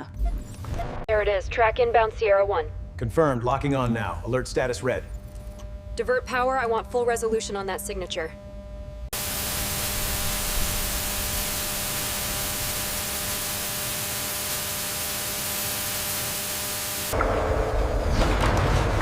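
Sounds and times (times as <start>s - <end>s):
faint steady hum: 1.1s - 17.9s
static hiss: 9.1s - 17.2s.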